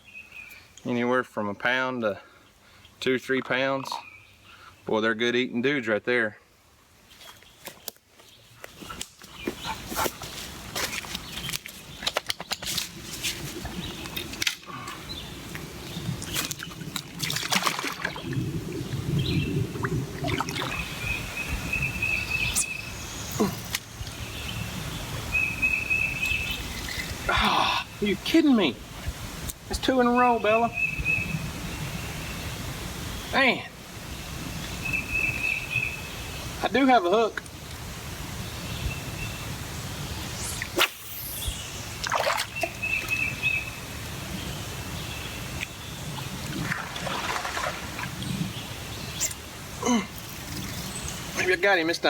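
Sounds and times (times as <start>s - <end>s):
outdoor background noise: 0.0s - 52.0s
water trickling: 13.5s - 22.8s, 25.1s - 28.2s, 45.5s - 51.4s.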